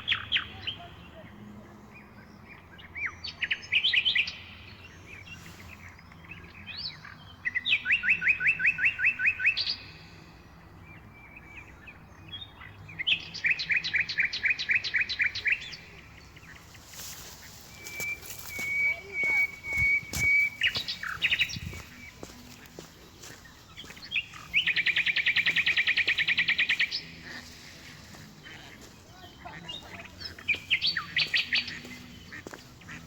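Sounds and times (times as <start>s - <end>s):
small songbird singing: 10.9s - 33.0s.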